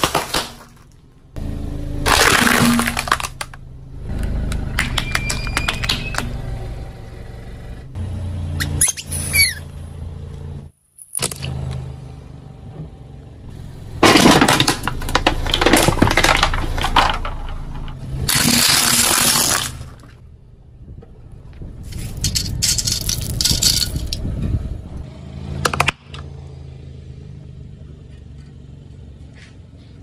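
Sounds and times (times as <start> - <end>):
tyre crushing objects: 0.0 - 1.0, 2.1 - 3.6, 14.0 - 20.1
car engine idling: 0.4 - 10.7, 11.6 - 18.4
loud crackling and cracking: 2.1 - 3.6
squeaks: 4.8 - 6.4, 8.6 - 9.8.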